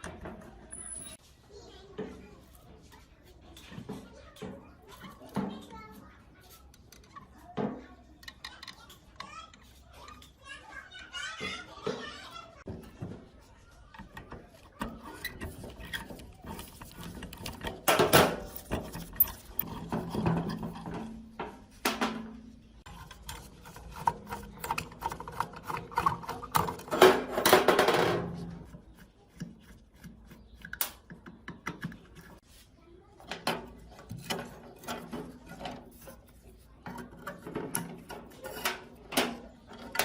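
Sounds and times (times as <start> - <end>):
scattered clicks and knocks: 0.0 - 1.2, 3.5 - 10.4, 11.2 - 32.5, 33.2 - 40.0
file scraping and rubbing: 12.9 - 21.7, 22.8 - 30.7, 33.7 - 40.0.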